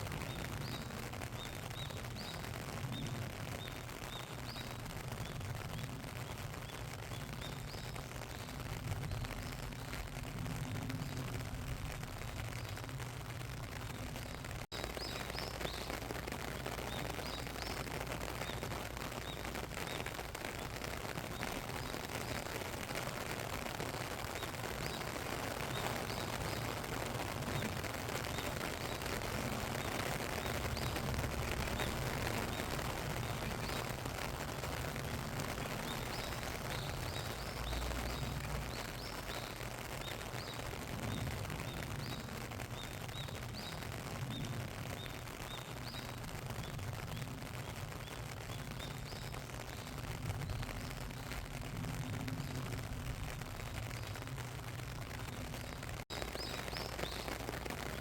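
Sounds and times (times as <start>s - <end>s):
small birds chirping faintly: 0.0s - 58.0s
steady rain falling: 0.0s - 58.0s.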